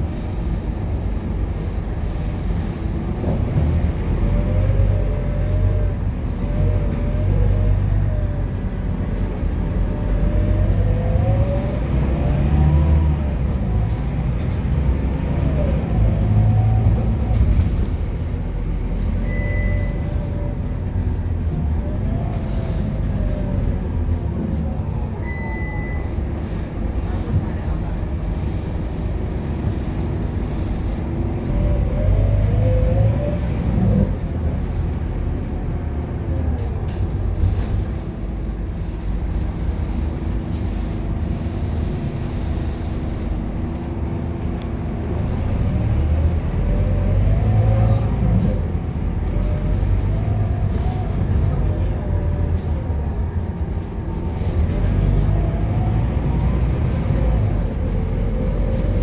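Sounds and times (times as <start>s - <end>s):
bus diesel engine accelerating: 0.0s - 59.0s
short high beeps: 19.2s - 20.0s, 25.2s - 26.1s.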